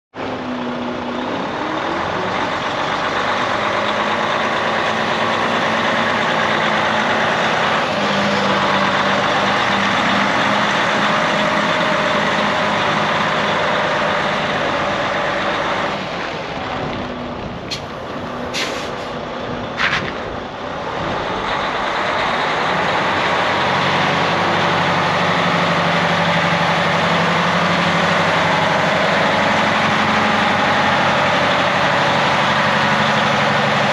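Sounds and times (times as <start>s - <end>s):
diesel truck engine running: 0.1s - 33.9s
air hisses from truck: 18.5s - 19.1s.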